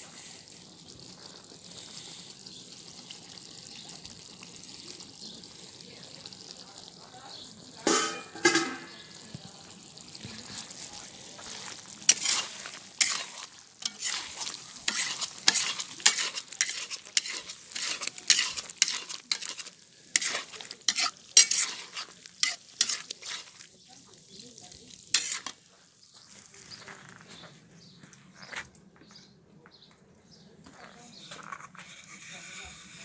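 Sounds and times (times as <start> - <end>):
food frying: 0.0 - 26.6
utensil scraping cauldron: 7.8 - 9.1, 10.2 - 25.7, 31.0 - 33.0.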